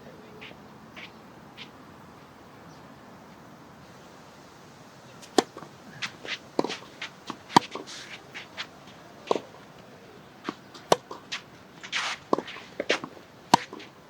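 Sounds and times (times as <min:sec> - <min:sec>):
low hiss: 0:00.0 - 0:14.0
footsteps on court: 0:05.2 - 0:14.0
racket hitting tennis ball: 0:05.2 - 0:14.0
tennis ball bouncing: 0:05.2 - 0:14.0.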